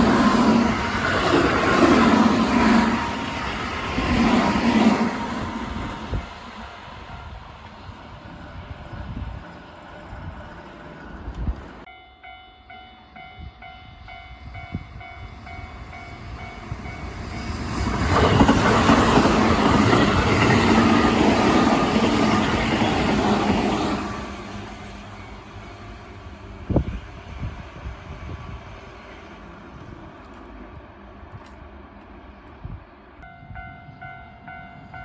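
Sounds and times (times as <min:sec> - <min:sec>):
train wheels rumbling on rails: 0:00.0 - 0:11.9, 0:13.1 - 0:35.0
level crossing bell clanging: 0:11.9 - 0:17.1.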